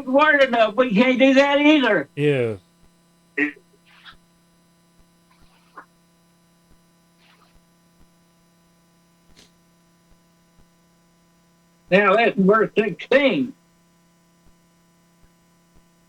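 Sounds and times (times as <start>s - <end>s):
electrical mains hum: 0.0s - 16.0s
short voice sound: 2.2s - 2.6s.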